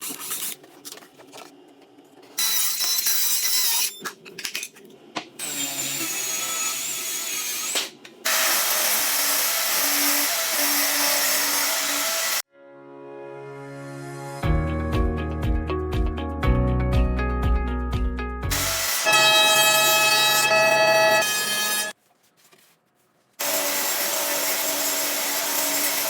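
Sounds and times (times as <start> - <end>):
knocks and handling noises: 0.0 - 2.4, 22.0 - 23.4
power tool cutting wood: 5.4 - 12.4, 18.5 - 21.9, 23.4 - 26.0.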